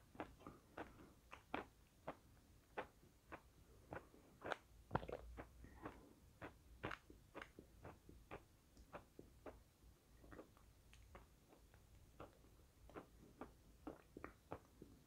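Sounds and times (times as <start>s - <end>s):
wet mouth clicks chewing: 0.0s - 15.0s.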